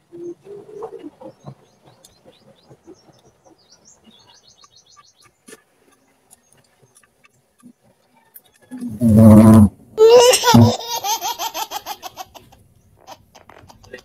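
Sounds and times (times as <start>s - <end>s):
small birds chirping: 0.1s - 9.0s.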